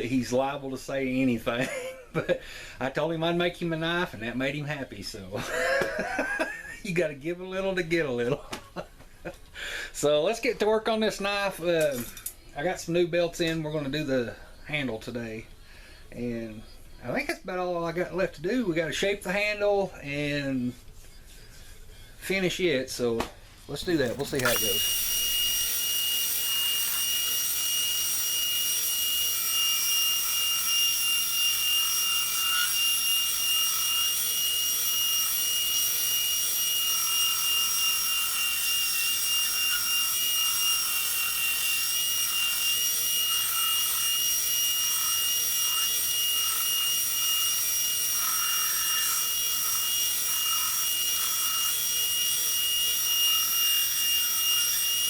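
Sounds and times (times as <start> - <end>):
belt grinder whining: 23.7 - 55.0.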